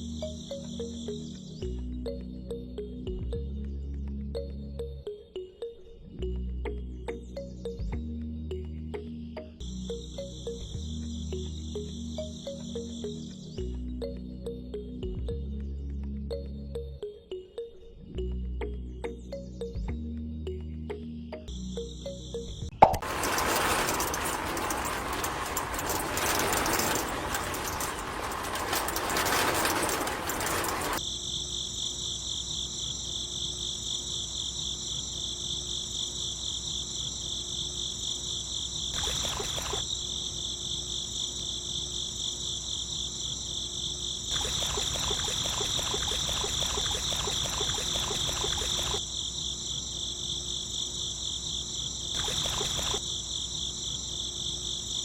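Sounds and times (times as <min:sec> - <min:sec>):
crickets chirping: 0:00.0 - 0:03.0, 0:09.0 - 0:14.6, 0:21.0 - 0:55.0.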